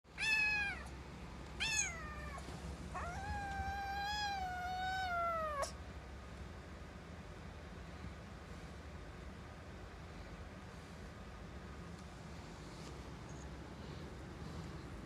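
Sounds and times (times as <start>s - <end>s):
kitten meowing: 0.2s - 0.9s, 1.6s - 5.8s.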